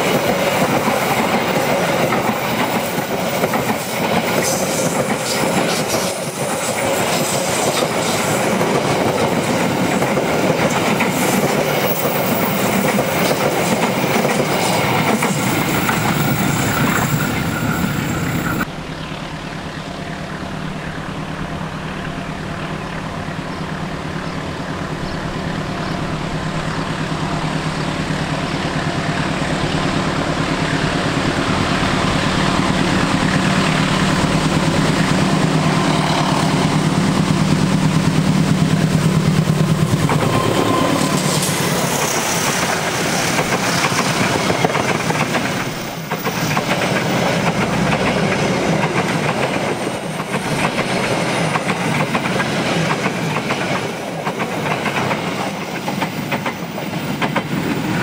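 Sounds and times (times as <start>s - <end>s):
train wheels clattering: 0.0s - 18.7s, 27.8s - 58.0s
locomotive engine drone: 14.9s - 52.9s.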